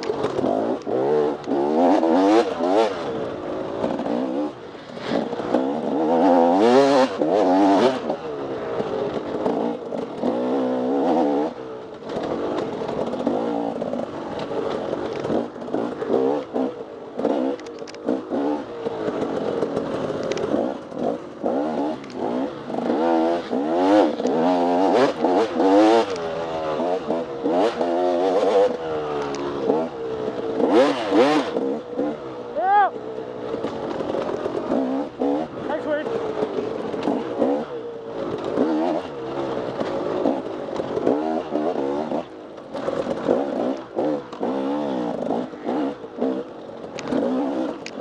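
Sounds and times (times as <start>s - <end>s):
knocks and clatters: 0.0s - 1.9s, 11.8s - 16.6s, 33.2s - 48.0s
dirt bike engine revving: 0.0s - 48.0s.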